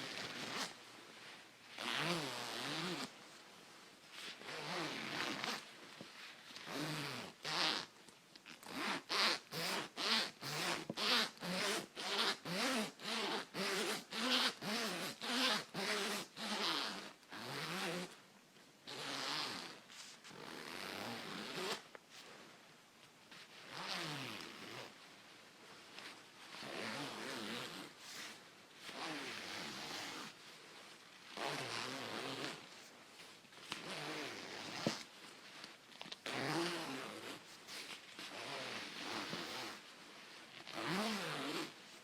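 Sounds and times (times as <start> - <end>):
coat zipper zipping: 0.0 - 0.8, 1.7 - 3.1, 4.1 - 5.7, 6.5 - 7.9, 8.5 - 18.2, 18.9 - 22.0, 23.5 - 25.0, 26.4 - 30.4, 31.3 - 32.9, 33.6 - 35.2, 36.2 - 39.9, 40.5 - 42.0.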